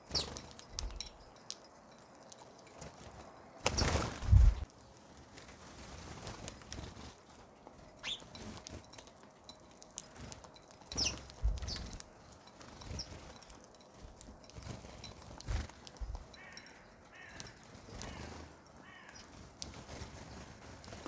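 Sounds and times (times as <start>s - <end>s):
birds chirping: 0.0s - 5.0s, 7.6s - 8.4s, 9.3s - 21.0s.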